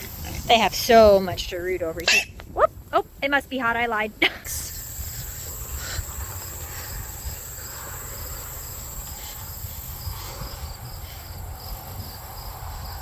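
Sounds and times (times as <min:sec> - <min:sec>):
insects trilling and chirping: 0:00.0 - 0:13.0
low rumble of wind: 0:00.0 - 0:13.0.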